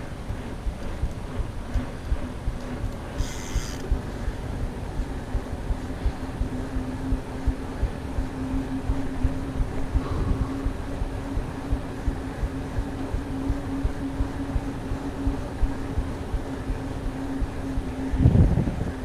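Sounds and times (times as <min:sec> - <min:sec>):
steady hum: 0:00.0 - 0:19.0
wind on the microphone: 0:02.4 - 0:11.9, 0:16.4 - 0:19.0.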